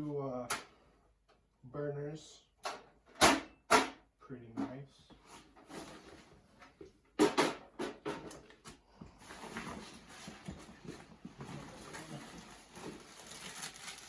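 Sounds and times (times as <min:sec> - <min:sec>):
rustling and shuffling: 0:05.0 - 0:07.0, 0:08.4 - 0:14.0.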